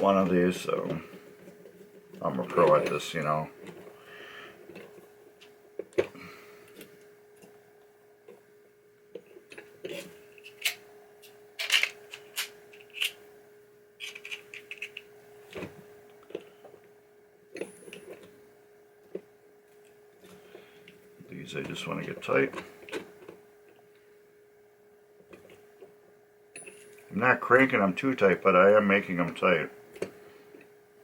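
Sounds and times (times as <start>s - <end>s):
faint steady hum: 0.0s - 31.0s
metal parts clicking and tapping: 9.1s - 13.2s, 14.0s - 16.5s.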